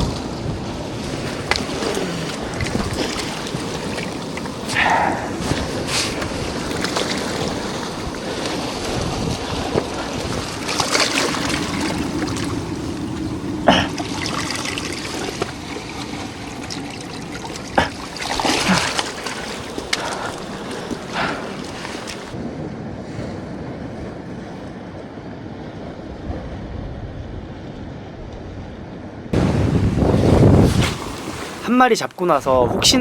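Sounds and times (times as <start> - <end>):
water splashing among rocks: 0.0 - 22.4.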